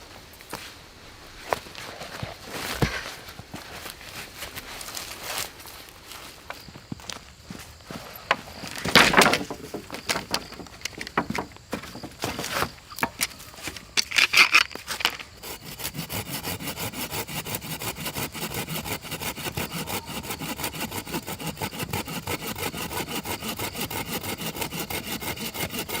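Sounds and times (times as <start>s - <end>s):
hand saw cutting wood: 15.4s - 26.0s.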